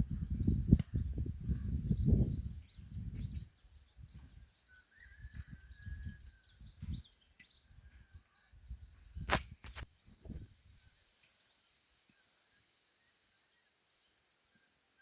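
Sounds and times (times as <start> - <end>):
faint bird chirps: 0.0 - 9.8.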